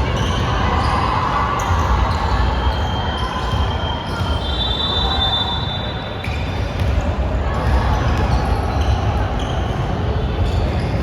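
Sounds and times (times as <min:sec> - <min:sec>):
basketball bouncing on court: 0:06.2 - 0:11.0.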